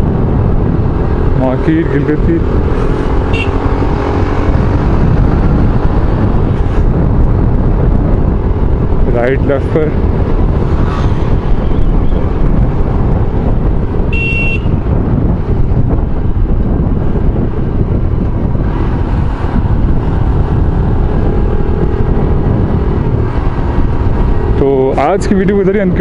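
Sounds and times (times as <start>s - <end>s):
motorcycle wind and road noise: 0.0s - 26.0s.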